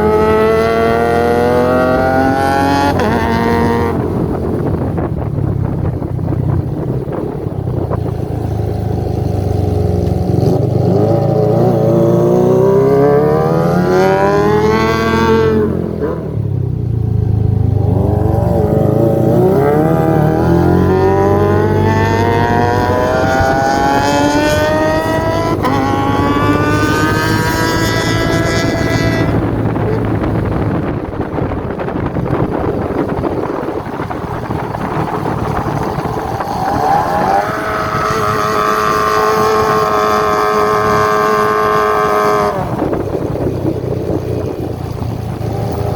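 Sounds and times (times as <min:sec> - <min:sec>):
motorcycle engine revving high: 0:00.0 - 0:45.9.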